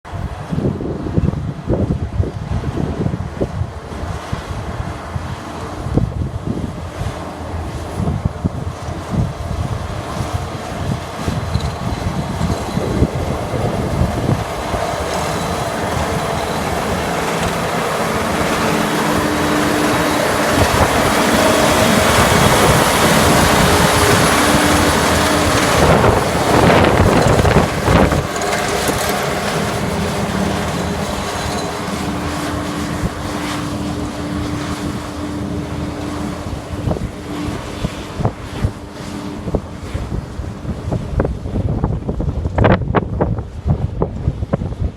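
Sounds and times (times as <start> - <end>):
rack train engine and wheels: 7.2 - 42.0.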